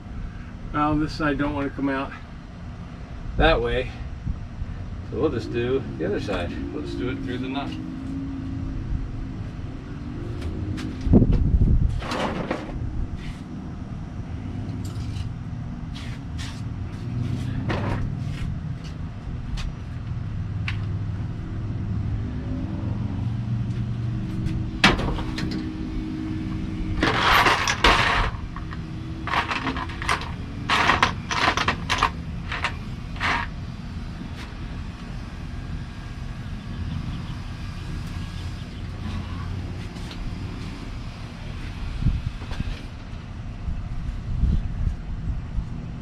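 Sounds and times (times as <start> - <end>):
steady low rumble: 0.0 - 46.0
rough scraping noise: 26.4 - 33.6.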